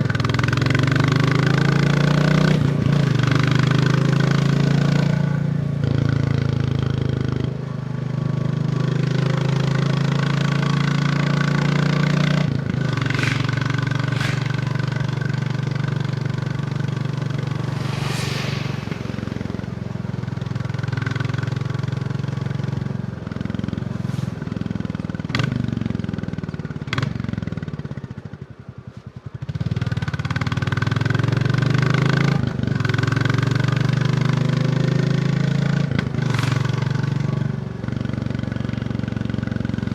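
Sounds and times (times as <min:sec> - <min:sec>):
motorcycle engine running: 0:12.0 - 0:18.1.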